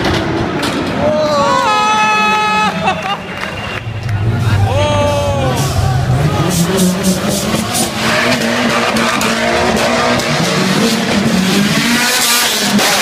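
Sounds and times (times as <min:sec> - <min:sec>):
car engines revving in tunnel: 0:00.0 - 0:13.0.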